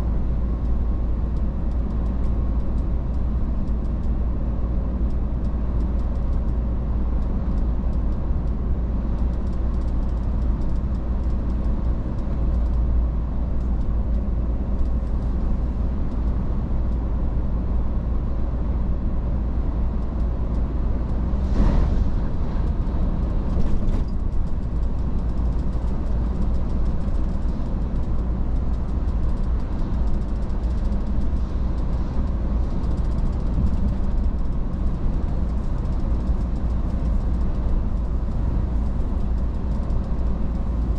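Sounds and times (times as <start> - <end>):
truck engine and road rumble: 0.0 - 40.9
brief whoosh: 21.4 - 22.8.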